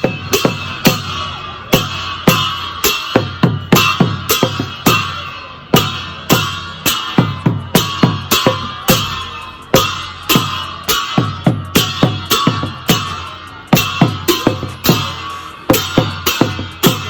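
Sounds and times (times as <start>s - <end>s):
cymbals clashing: 0.0s - 17.0s
hand drum beating: 0.0s - 17.0s.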